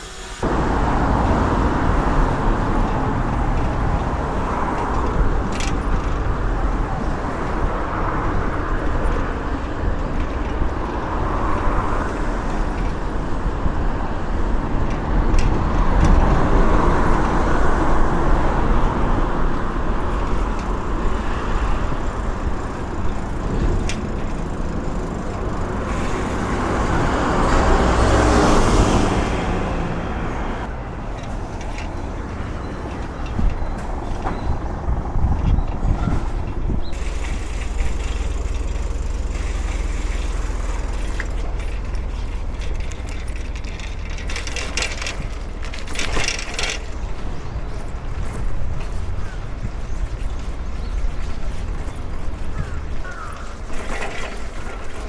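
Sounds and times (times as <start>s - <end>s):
road traffic rumble: 0.0s - 55.0s
vehicles passing: 0.0s - 55.0s.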